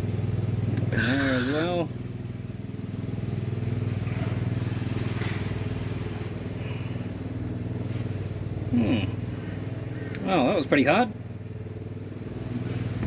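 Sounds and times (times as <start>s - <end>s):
low engine-like hum: 0.0s - 13.0s
spray can hissing: 0.9s - 1.7s, 4.5s - 6.4s.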